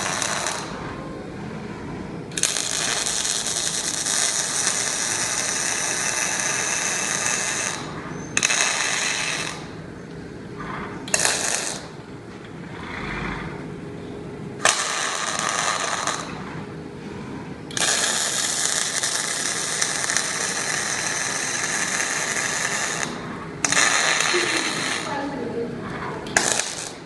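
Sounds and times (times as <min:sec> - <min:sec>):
welding arc crackling and hissing: 0:00.0 - 0:00.9, 0:02.3 - 0:09.8, 0:11.1 - 0:12.0, 0:14.6 - 0:16.5, 0:17.7 - 0:25.5, 0:26.3 - 0:27.0.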